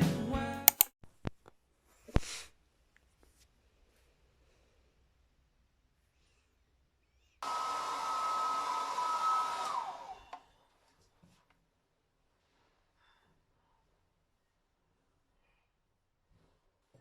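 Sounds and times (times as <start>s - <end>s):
electric motor whining: 7.4s - 10.3s.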